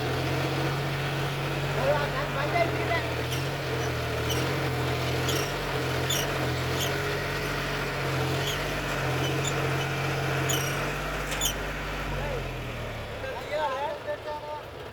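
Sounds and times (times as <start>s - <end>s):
tractor engine humming: 0.0s - 14.9s.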